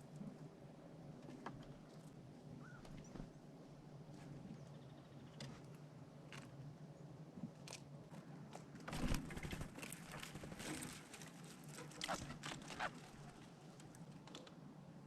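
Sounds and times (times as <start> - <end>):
squirrel gnawing and crunching food: 9.7 - 14.6.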